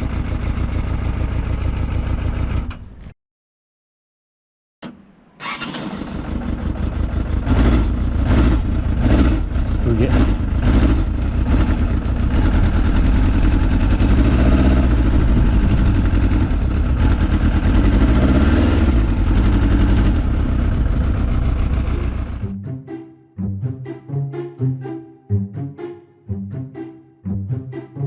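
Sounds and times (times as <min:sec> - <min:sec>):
motorcycle engine idling: 0:00.0 - 0:03.0, 0:05.4 - 0:22.5.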